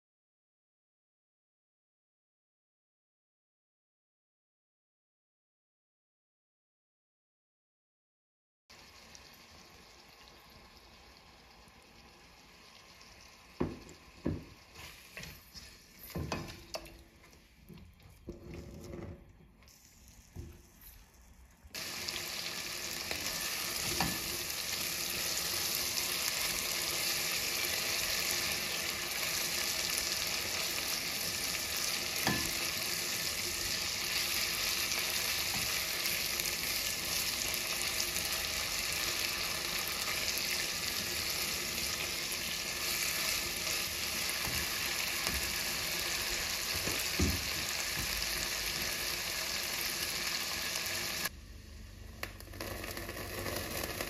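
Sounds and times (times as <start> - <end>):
food frying in oil: 8.7 - 18.6, 19.7 - 54.0
spatula scraping and knocking pot: 13.6 - 19.3.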